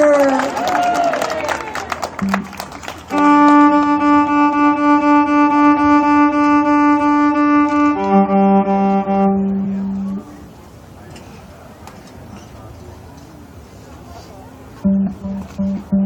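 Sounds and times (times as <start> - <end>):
violin bowed notes: 3.1 - 10.4, 14.8 - 16.0.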